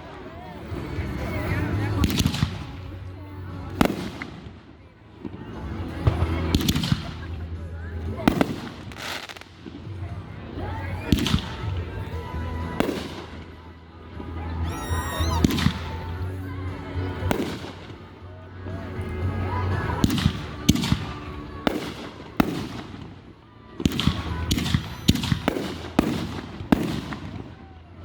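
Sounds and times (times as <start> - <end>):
fireworks bangs: 14.7 - 16.0, 21.6 - 27.7.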